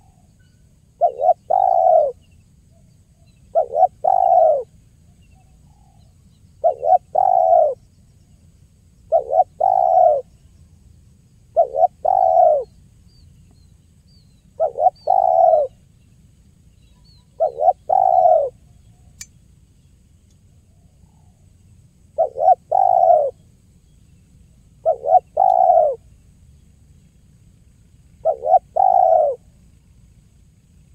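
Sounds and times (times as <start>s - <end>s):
small birds chirping: 0.0s - 30.9s
dove cooing: 1.0s - 2.2s, 3.5s - 4.8s, 6.6s - 7.8s, 9.1s - 10.3s, 11.5s - 12.7s, 14.6s - 15.8s, 17.2s - 18.6s, 22.2s - 23.4s, 24.8s - 26.1s, 28.1s - 29.6s
click: 19.2s - 19.4s, 20.2s - 20.4s.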